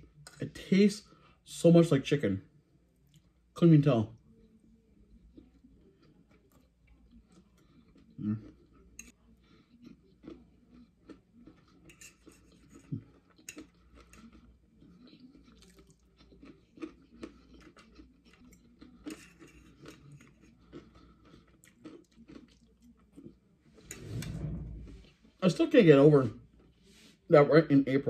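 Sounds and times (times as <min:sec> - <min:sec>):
person chewing quietly: 0:02.9 - 0:03.4, 0:04.2 - 0:23.9.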